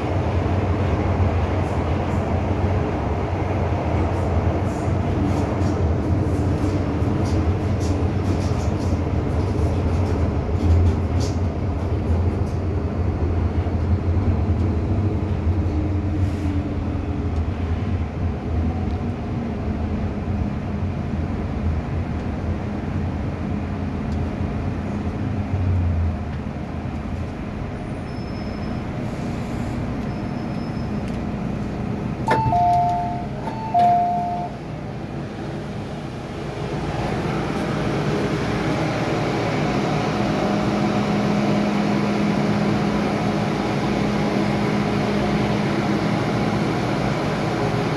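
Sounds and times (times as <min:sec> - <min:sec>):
train rail rumble: 0:00.0 - 0:47.9
two-tone electronic chime: 0:32.3 - 0:34.5.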